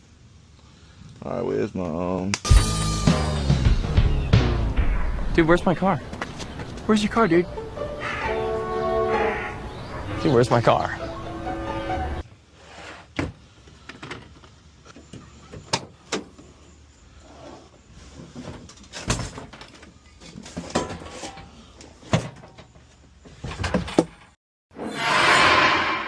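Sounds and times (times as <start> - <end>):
faint hiss: 0.0 - 2.3.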